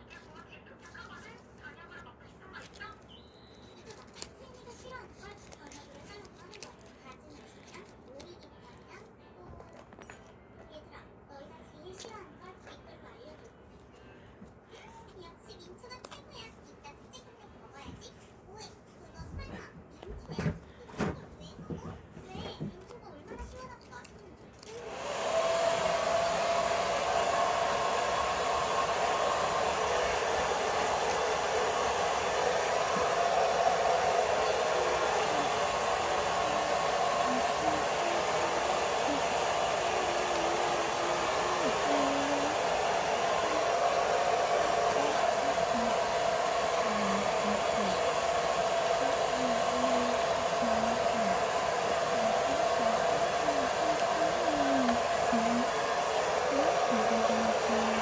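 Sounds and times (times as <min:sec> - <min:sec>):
small motor and fan whirring: 0:23.9 - 0:58.0.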